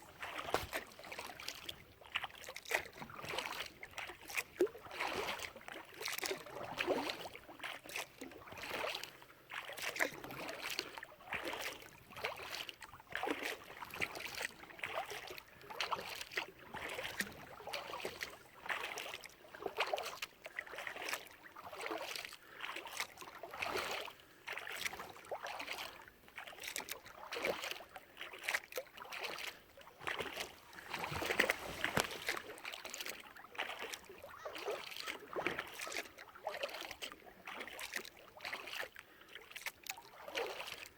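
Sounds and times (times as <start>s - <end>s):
kayak paddle strokes in water: 0.0s - 40.9s.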